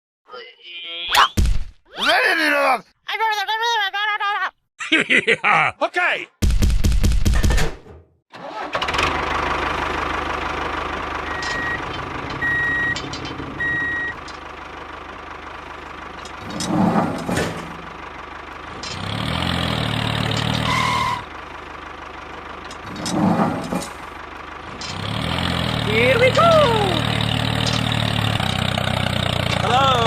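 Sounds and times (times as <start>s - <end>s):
vehicle engine running: 8.7s - 30.0s
reversing beeps: 11.3s - 13.0s, 13.6s - 14.2s.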